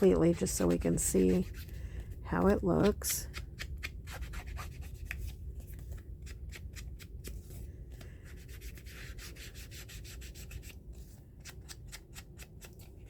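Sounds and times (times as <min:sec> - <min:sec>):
tool rubbing over paper: 0:00.0 - 0:03.4, 0:08.2 - 0:10.8.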